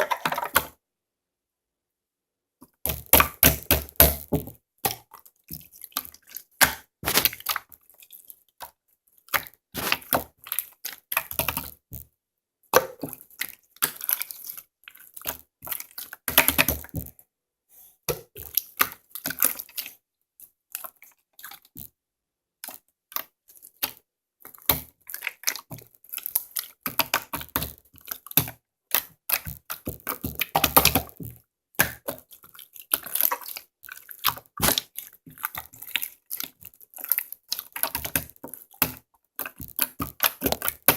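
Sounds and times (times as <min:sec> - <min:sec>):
sticky slime clicking and crackling: 0:02.9 - 0:07.9, 0:22.6 - 0:40.9.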